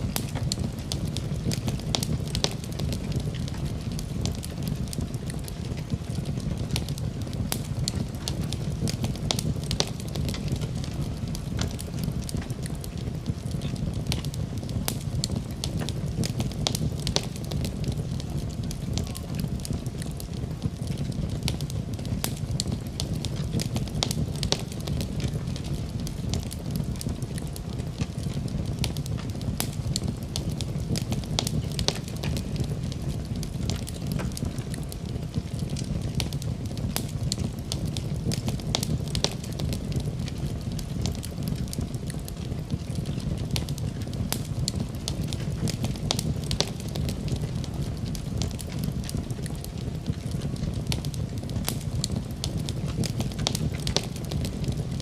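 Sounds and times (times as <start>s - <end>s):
fire crackling and popping: 0.0s - 55.0s
fire low rumble: 0.0s - 55.0s.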